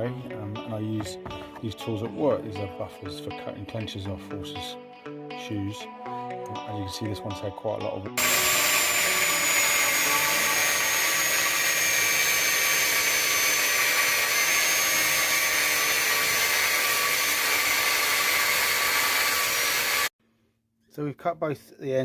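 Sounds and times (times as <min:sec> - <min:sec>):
angle grinder cutting steel: 0:08.2 - 0:20.1.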